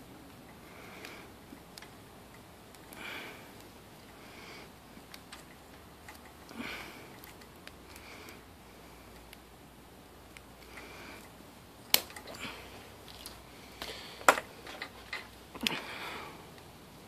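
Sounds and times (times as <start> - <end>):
sharp clicks of wiring parts: 1.0 - 3.0.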